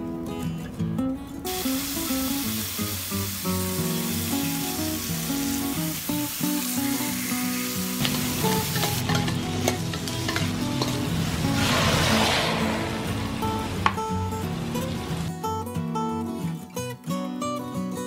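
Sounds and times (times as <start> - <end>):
fish sizzling on grill pan: 1.5 - 11.7
metal spatula scraping pan: 8.6 - 14.0.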